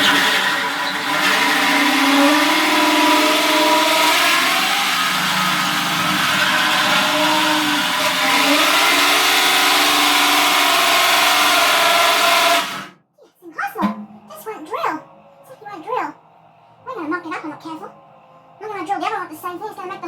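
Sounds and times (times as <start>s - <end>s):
electric drill cutting steel: 0.0s - 13.0s.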